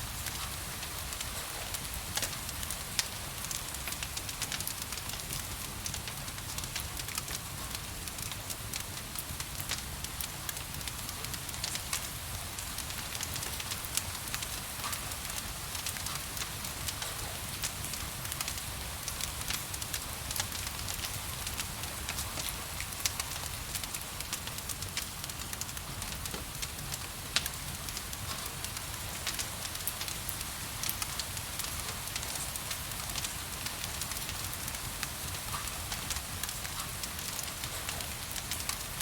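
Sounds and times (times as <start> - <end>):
gentle rain hiss: 0.0 - 39.0
wood fire crackling: 0.0 - 39.0.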